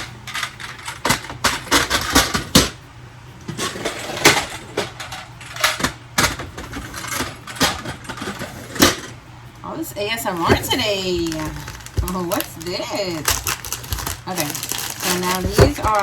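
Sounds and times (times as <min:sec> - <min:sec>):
small hard items clinking in plastic: 0:10.3 - 0:16.0.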